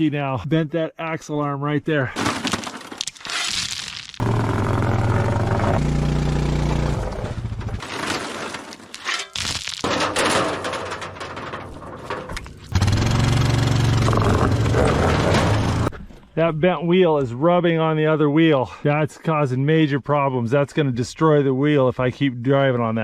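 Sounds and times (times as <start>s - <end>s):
wheel rubbing and scraping: 2.2s - 16.0s
vehicle engine running: 4.2s - 7.8s, 12.6s - 15.9s
clicks and knocks: 7.8s - 12.8s.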